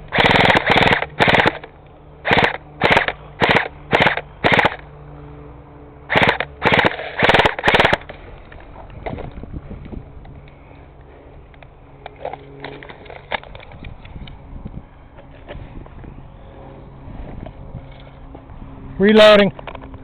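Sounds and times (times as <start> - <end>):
airsoft gun automatic bursts: 0.0 - 4.8, 6.1 - 8.1.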